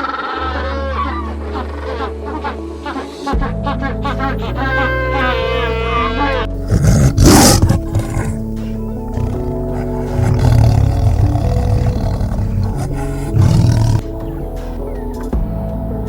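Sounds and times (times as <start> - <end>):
background music: 0.0 - 16.0
large animal roaring: 6.6 - 14.0.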